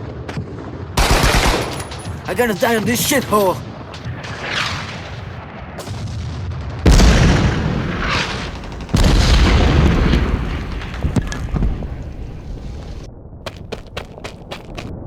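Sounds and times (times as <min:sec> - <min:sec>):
heavy explosions with deep rumble: 0:04.8 - 0:14.0
sharp cracks: 0:06.9 - 0:15.0.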